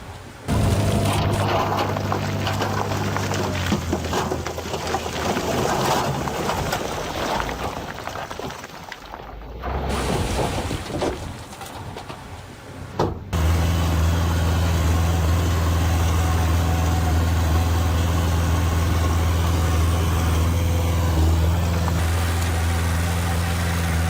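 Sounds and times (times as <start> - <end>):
diesel engine running low revs: 0.5 - 6.6, 13.3 - 24.0
uneven machinery noise: 0.5 - 6.8, 13.3 - 24.0.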